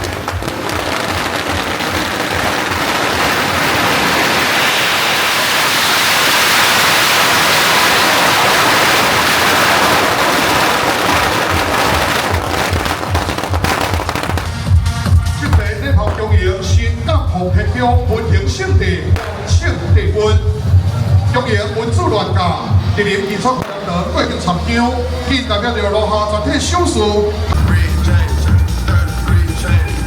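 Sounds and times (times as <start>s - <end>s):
firecrackers crackling: 0.0s - 25.3s.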